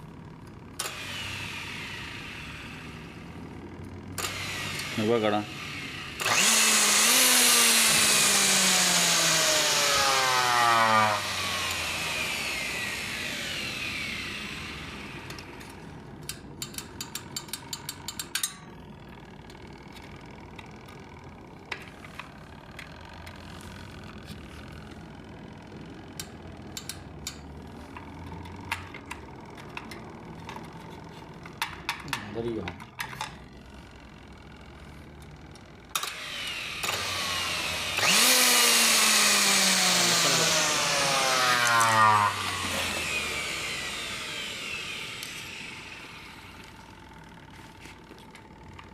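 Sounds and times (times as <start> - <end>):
mixer grinder motor running: 0.0 - 18.1, 18.7 - 32.6, 33.4 - 48.9.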